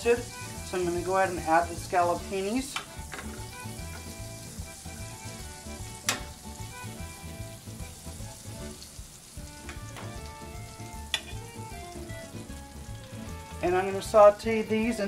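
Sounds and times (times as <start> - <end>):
food sizzling in a pan: 0.0 - 15.0
metal tongs clicking against pan: 2.6 - 3.5, 6.0 - 6.4, 11.1 - 11.4.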